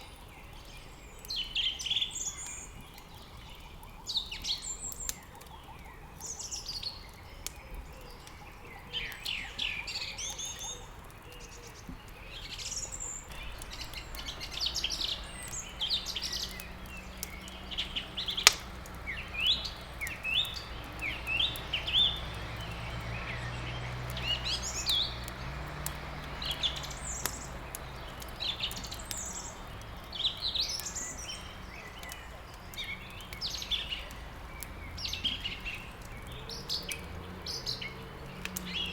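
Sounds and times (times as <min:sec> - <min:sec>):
songbirds chirping: 0:00.0 - 0:38.9
sharp crack: 0:12.1 - 0:38.9.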